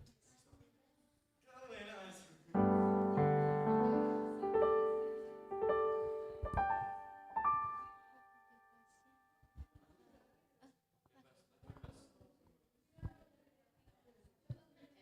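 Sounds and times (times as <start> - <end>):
slow piano chords: 2.6 - 9.1.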